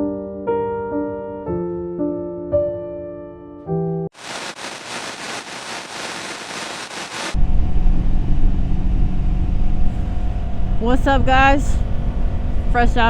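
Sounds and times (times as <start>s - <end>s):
soft piano music: 0.0s - 4.1s
steady hiss: 4.2s - 7.4s.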